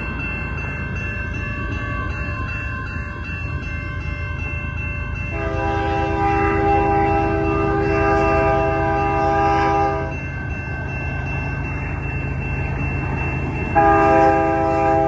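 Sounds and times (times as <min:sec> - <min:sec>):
diesel locomotives rumbling: 0:00.0 - 0:15.0
locomotive air horn blast: 0:05.3 - 0:10.1, 0:13.8 - 0:15.0.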